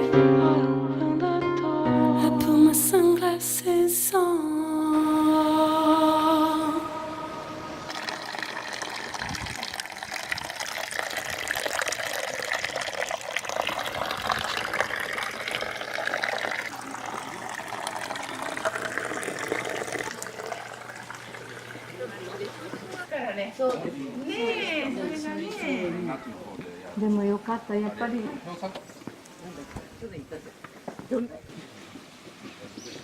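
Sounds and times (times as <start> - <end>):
running water splashing: 7.7 - 23.0.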